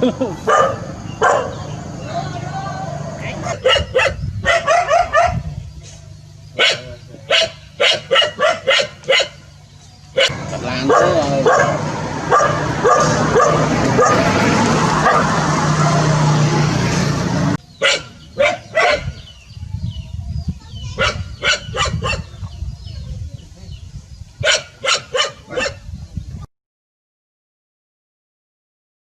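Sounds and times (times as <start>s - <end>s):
dog barking: 0.5s - 1.7s, 3.4s - 5.5s, 6.6s - 9.4s, 10.1s - 14.3s, 15.0s - 16.1s, 17.8s - 19.2s, 21.0s - 22.3s, 24.4s - 25.9s.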